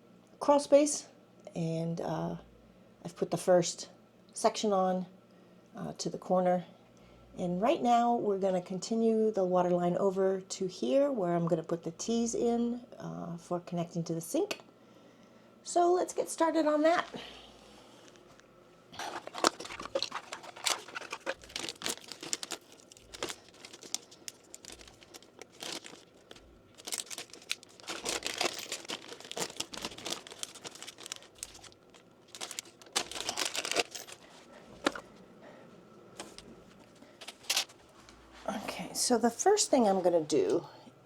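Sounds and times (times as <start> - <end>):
crinkling and rustling: 19.0 - 35.2, 36.1 - 38.5.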